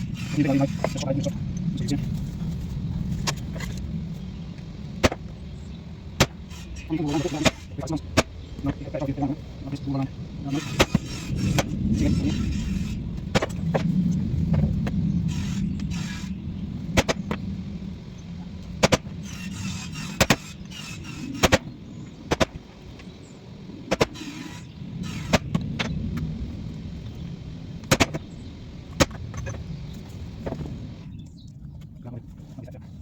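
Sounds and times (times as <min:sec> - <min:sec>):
steady low hum: 0:00.0 - 0:33.0
sharp knocks: 0:05.0 - 0:05.3.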